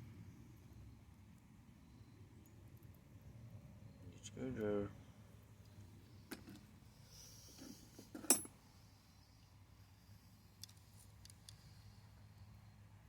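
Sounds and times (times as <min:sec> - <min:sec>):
metal tools clicking and clinking: 0:08.1 - 0:08.5.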